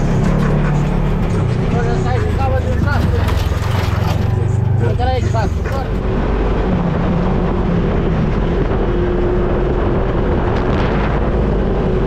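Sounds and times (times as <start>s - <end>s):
off-road vehicle engine running: 0.0s - 12.0s
wind noise on microphone: 6.0s - 12.0s.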